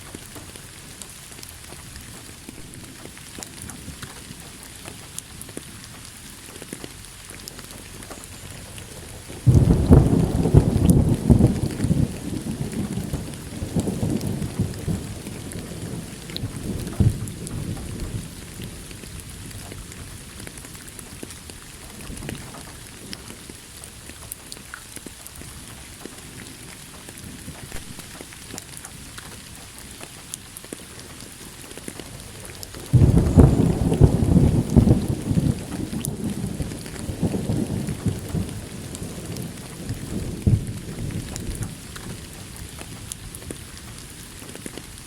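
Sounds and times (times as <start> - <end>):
steady rain: 0.0 - 45.0
thunder rumbling: 1.7 - 4.4, 7.7 - 23.3, 31.5 - 45.0.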